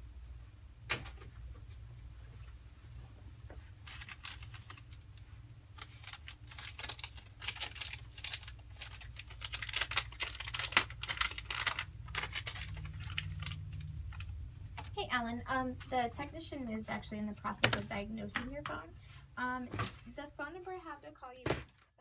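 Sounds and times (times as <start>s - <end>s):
crinkling and tearing: 3.8s - 15.0s.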